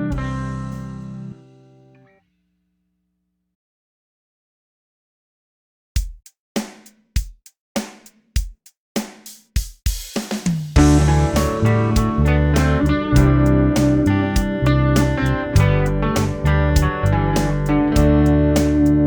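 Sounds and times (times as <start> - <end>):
drum kit beats: 0.0 - 0.9, 6.0 - 19.0
band with bass and guitar: 0.0 - 1.9, 10.8 - 19.0.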